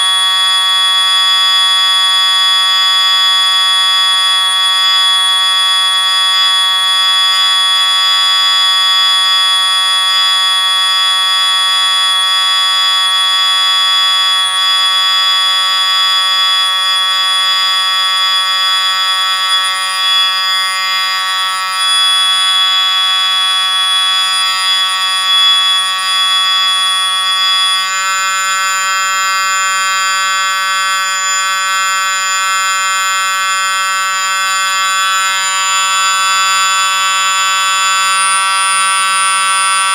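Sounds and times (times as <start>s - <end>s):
drone of high-pitched tones: 0.0s - 39.9s.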